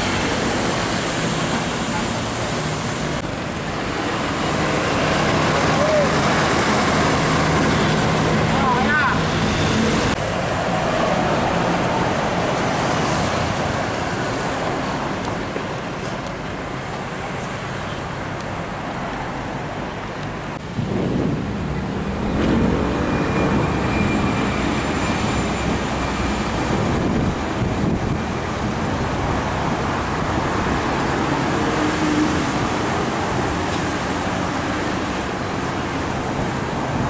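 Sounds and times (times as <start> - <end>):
road traffic passing: 0.0 - 37.0
vehicle engine: 20.5 - 34.4.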